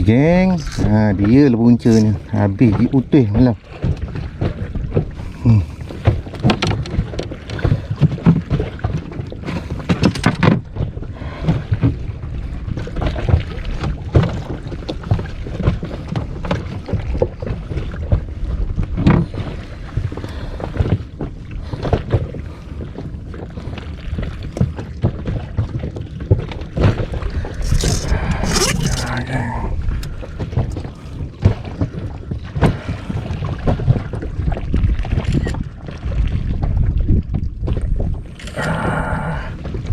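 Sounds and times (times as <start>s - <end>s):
water slapping against inflatable boat: 0.0s - 39.9s
wind on microphone: 25.2s - 39.9s.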